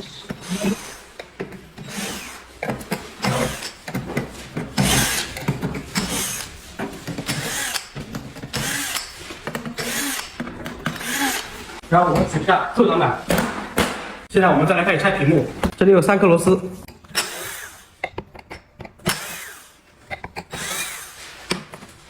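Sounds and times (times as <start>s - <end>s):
screwdriver rasping out screws: 7.2s - 11.6s.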